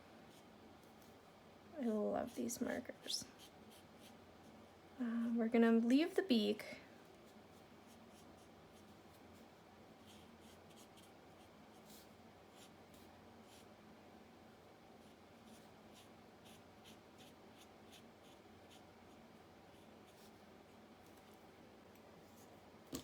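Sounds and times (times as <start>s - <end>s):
low room hum: 0.0s - 23.0s
marker strokes on card: 7.2s - 13.7s, 15.0s - 20.4s.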